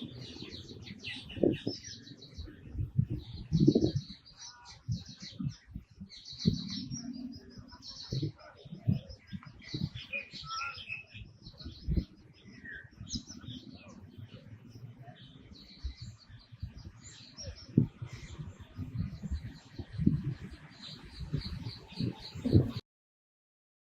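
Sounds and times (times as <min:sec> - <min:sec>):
dull low thumps: 0:00.0 - 0:04.2, 0:15.7 - 0:22.8
birds chirping and calling: 0:00.0 - 0:22.8.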